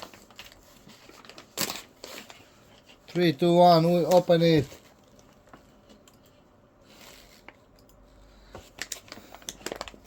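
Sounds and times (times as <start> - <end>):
small plastic crinkles: 0.0 - 6.1, 8.5 - 10.0.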